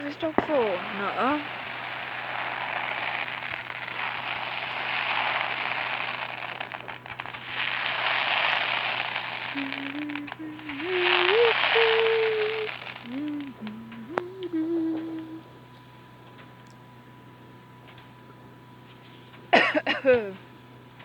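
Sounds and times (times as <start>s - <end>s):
sharp firework pops: 0.0s - 15.3s
fireworks crackling: 0.0s - 15.5s.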